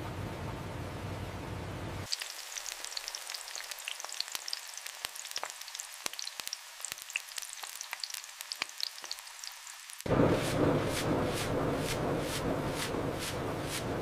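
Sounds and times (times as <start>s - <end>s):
food sizzling and popping: 2.1s - 12.9s.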